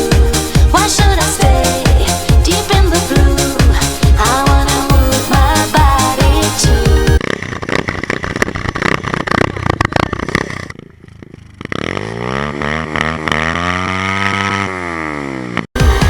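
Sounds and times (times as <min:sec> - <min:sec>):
motorcycle engine clattering and revving: 0:07.2 - 0:15.8.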